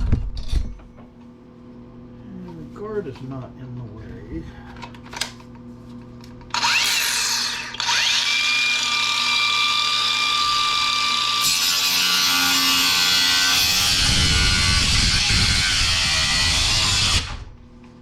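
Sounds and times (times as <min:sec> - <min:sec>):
angle grinder cutting metal: 0:06.5 - 0:17.5.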